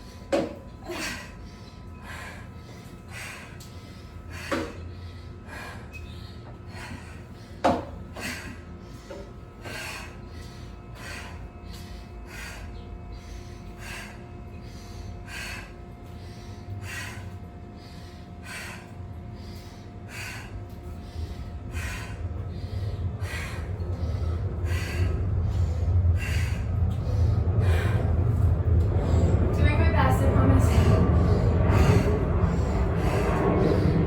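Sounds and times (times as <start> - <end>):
woman breathing hard: 0.0 - 34.0
low rumble: 20.1 - 34.0.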